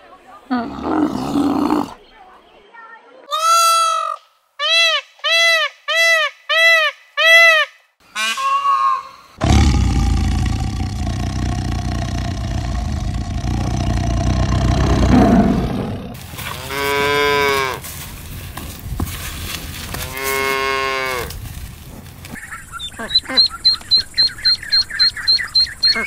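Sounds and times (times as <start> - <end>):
peacock honking calls: 3.3 - 9.3
tiger roaring: 9.4 - 17.0
cow mooing: 9.4 - 17.8.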